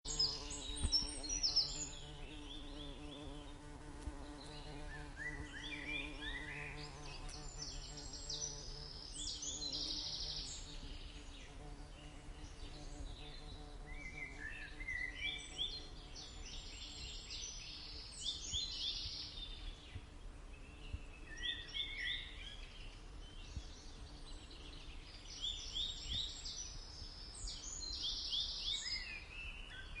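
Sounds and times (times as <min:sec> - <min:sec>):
bumblebee buzzing: 0:00.1 - 0:17.1
songbird singing: 0:00.1 - 0:30.0.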